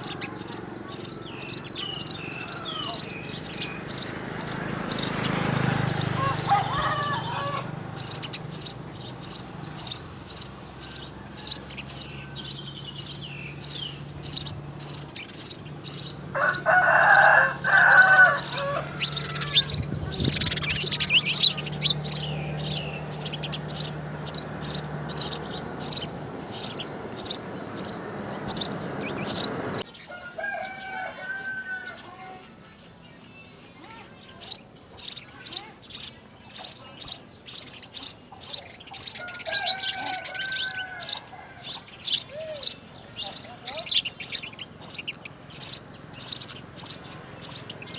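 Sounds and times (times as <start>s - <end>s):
rooster crowing: 0.0s - 14.9s, 15.8s - 32.4s, 39.1s - 42.7s
sparrows chirping: 0.0s - 47.9s.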